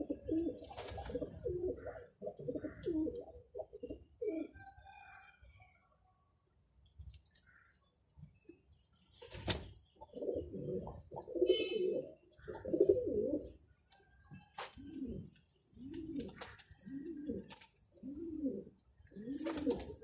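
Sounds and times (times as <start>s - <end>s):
pigeons cooing: 0.0s - 4.6s, 10.0s - 13.6s, 14.6s - 20.0s.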